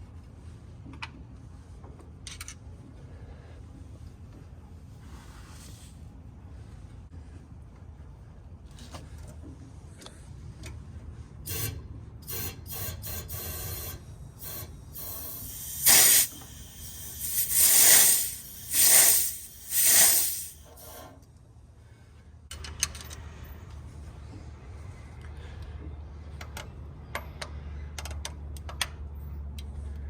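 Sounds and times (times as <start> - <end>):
pressurised gas hissing: 11.5 - 21.2.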